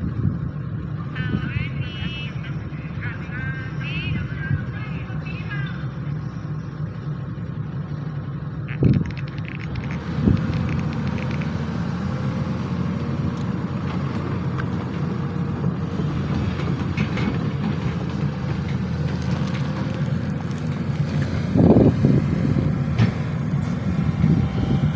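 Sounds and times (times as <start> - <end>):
excavator diesel engine droning: 0.0 - 24.9
short knocks: 16.2 - 24.4.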